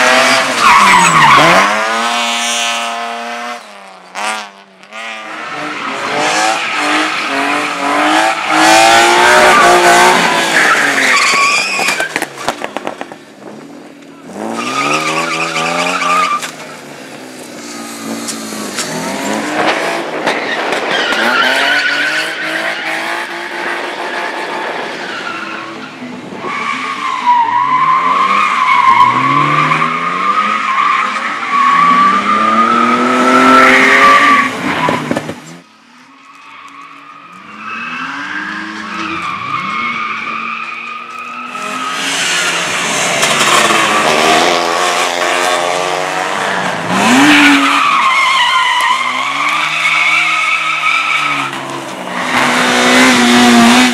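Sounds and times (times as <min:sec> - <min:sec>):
car engines revving: 0:00.0 - 0:53.9
tyres squealing: 0:08.3 - 0:12.2, 0:14.2 - 0:16.8.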